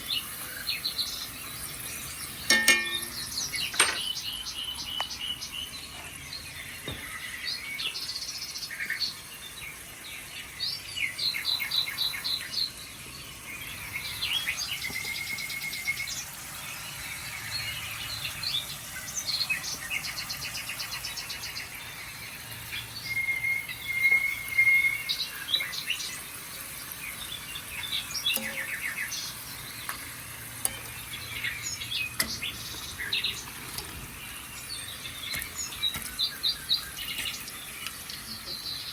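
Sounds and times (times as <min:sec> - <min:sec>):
recorded birds chirping and trilling: 0:00.0 - 0:38.9.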